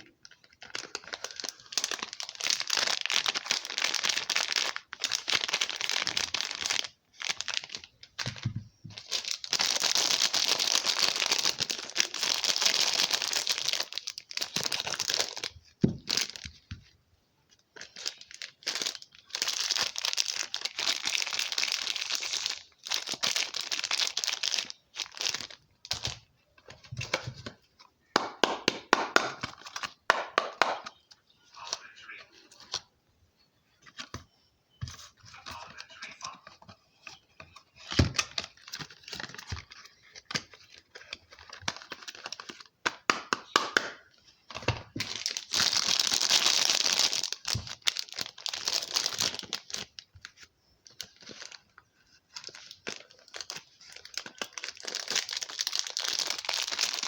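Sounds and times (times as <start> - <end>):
packaging crinkling and tearing: 0.2 - 8.4, 9.0 - 16.6, 17.7 - 26.3, 37.8 - 42.7, 44.7 - 57.0.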